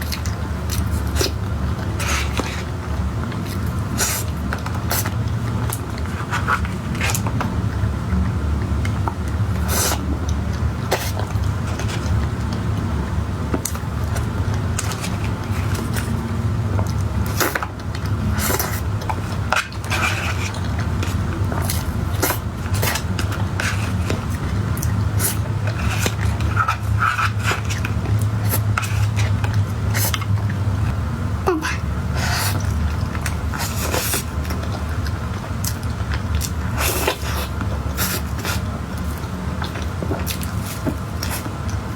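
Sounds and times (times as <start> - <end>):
steady low hum: 0.0 - 41.9
utensils scraping a dish: 25.2 - 30.2.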